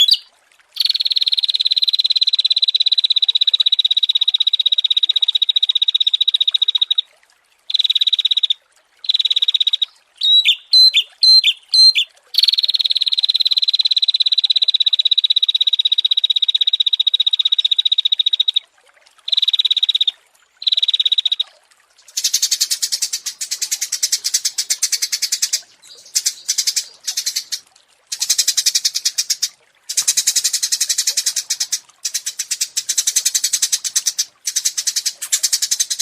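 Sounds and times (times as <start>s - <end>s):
sharp sweeping bird chirps: 0.0s - 0.3s
songbirds trilling: 0.0s - 0.3s, 9.8s - 12.5s, 22.1s - 36.0s.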